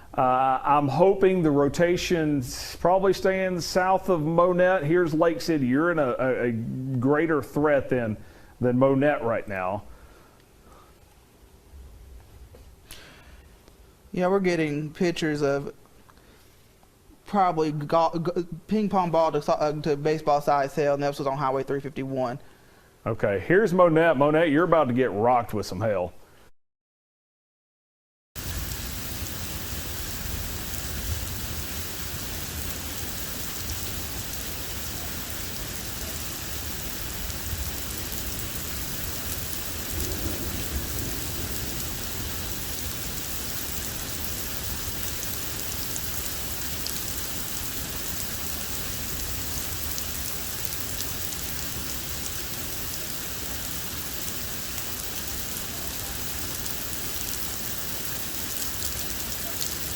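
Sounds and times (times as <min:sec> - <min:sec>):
heavy rain pouring: 0:28.4 - 0:59.9.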